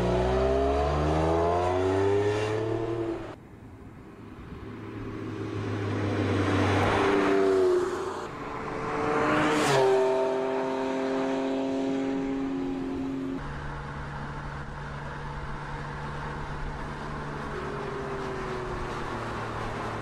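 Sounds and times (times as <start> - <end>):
car engine revving: 0.0 - 3.4.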